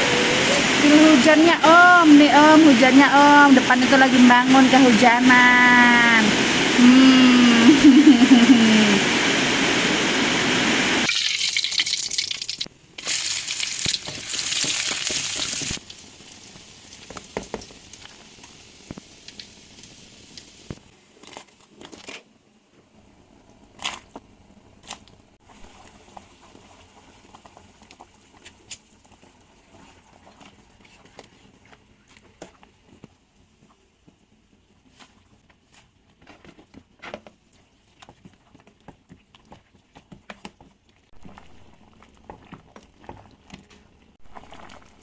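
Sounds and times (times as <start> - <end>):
faint rain: 0.0 - 21.0
heavy rain pouring: 4.8 - 11.1.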